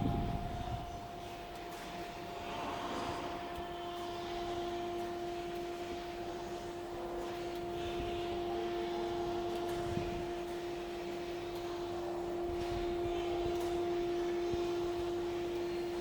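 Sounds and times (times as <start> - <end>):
fan-like rushing noise: 0.0 - 3.5
electrical machine hum: 0.0 - 16.0.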